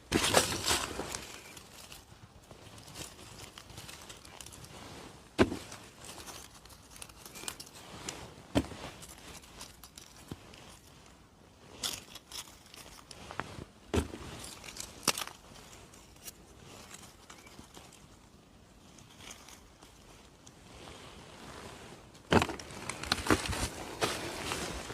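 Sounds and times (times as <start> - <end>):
leaf litter rustling: 0.0 - 24.9
twigs snapping: 14.0 - 16.4.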